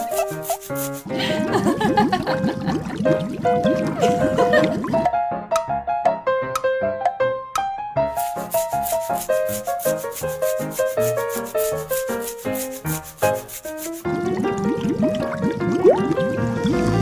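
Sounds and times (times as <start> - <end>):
fast scratchy percussion: 0.0 - 1.2, 8.1 - 14.2
bouncy cartoon melody: 0.0 - 17.0.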